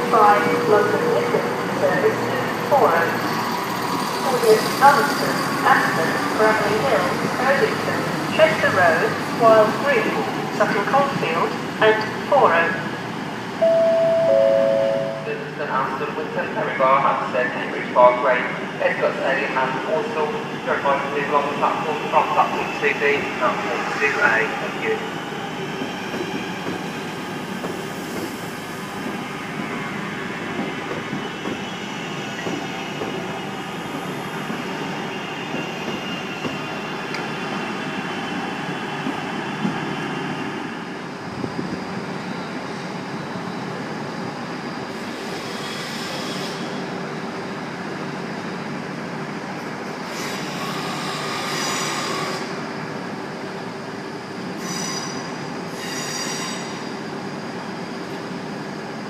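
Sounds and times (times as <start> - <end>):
passenger train humming: 0.0 - 59.0
train wheels squealing: 29.2 - 46.9, 50.0 - 52.6, 54.5 - 57.1.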